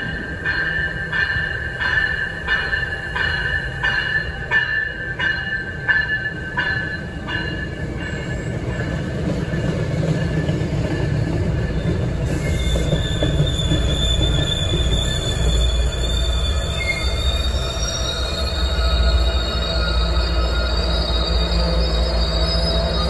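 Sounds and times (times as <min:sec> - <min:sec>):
train bell ringing: 0:00.0 - 0:23.0
train rumbling past: 0:00.0 - 0:23.0
high wheel squeal: 0:05.5 - 0:23.0.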